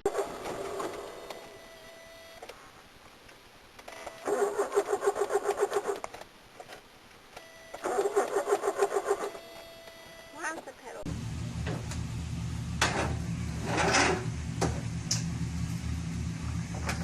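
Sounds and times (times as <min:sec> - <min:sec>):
faint steady tone: 0:01.0 - 0:04.4, 0:09.1 - 0:11.1.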